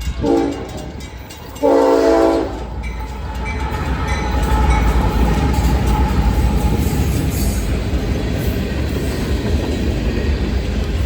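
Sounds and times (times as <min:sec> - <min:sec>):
low rumble of train: 0:00.0 - 0:11.0
train horn blasts: 0:00.2 - 0:01.0, 0:01.6 - 0:02.8.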